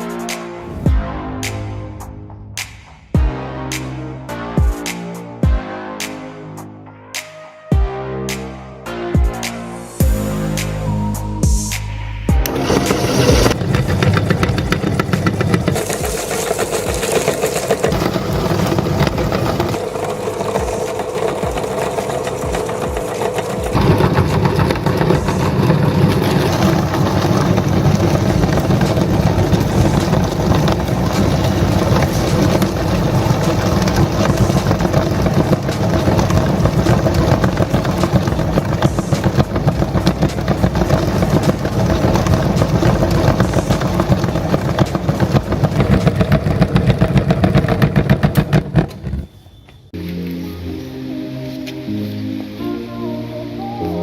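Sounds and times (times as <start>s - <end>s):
electric meat grinder running: 12.4s - 49.1s.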